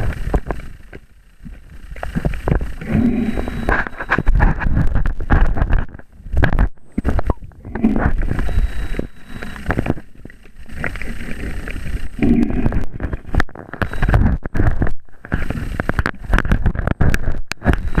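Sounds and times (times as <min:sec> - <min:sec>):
water sloshing and gurgling: 0:00.0 - 0:18.0.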